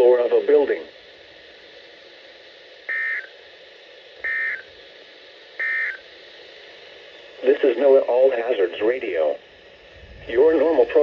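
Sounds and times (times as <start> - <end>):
steady radio hiss: 0.0 - 11.0
warbling two-tone data screech: 2.9 - 3.3, 4.3 - 4.7, 5.6 - 6.0.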